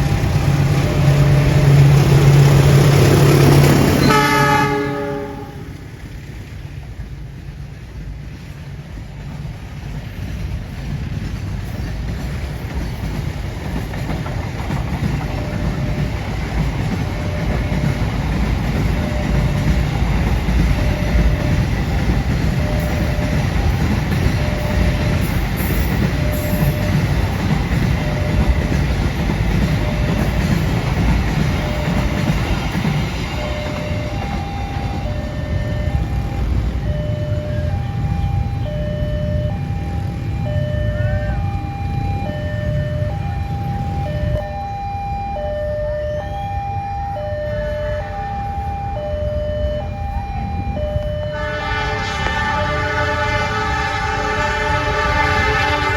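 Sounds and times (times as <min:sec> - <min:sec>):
level-crossing warning signal: 0:00.0 - 0:06.3, 0:09.3 - 0:55.9
fast train rumbling on rails: 0:00.0 - 0:55.9
train horn: 0:00.8 - 0:06.0, 0:40.7 - 0:41.7, 0:51.1 - 0:55.9.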